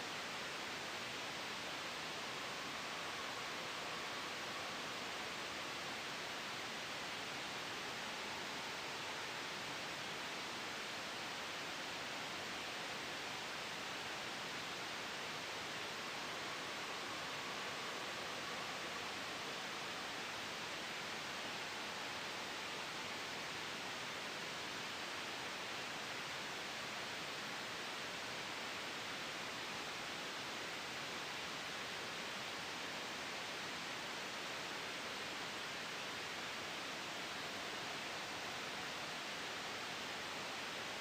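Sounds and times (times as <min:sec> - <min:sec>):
white noise hiss: 0:00.0 - 0:41.0.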